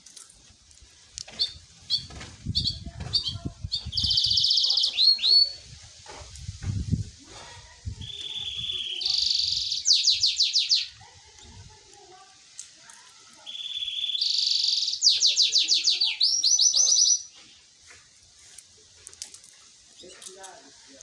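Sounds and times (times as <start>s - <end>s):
canary singing trills: 1.3s - 5.7s, 7.9s - 11.7s, 13.2s - 17.7s.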